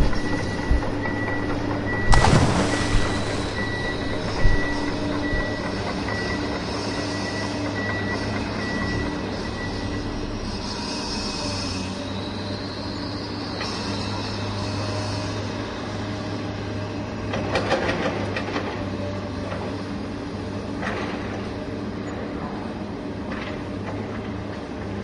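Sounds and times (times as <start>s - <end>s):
vehicle-like drone: 0.0s - 25.0s
high beep: 0.2s - 6.4s.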